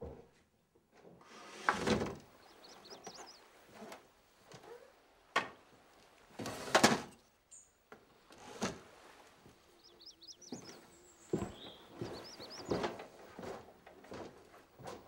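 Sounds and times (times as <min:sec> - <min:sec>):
scraping rustle: 0:01.2 - 0:05.0, 0:05.6 - 0:07.2, 0:08.2 - 0:09.8
small bird chirping: 0:02.3 - 0:03.6, 0:09.6 - 0:13.0.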